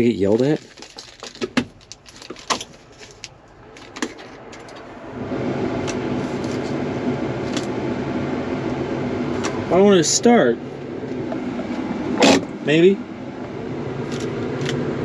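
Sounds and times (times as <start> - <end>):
tractor mechanical hum: 0.0 - 15.0.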